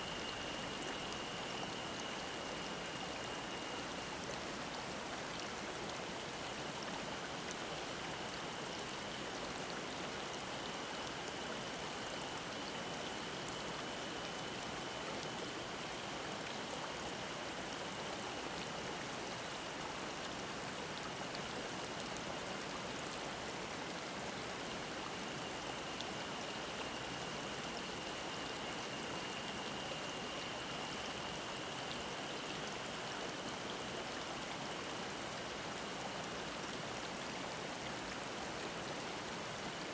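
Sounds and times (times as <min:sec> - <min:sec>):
cicada drone: 0:00.0 - 0:04.3, 0:23.9 - 0:37.2.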